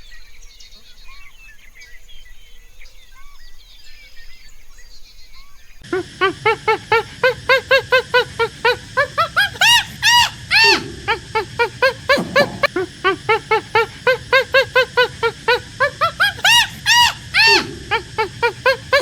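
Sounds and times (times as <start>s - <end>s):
animals yelping: 5.9s - 19.0s.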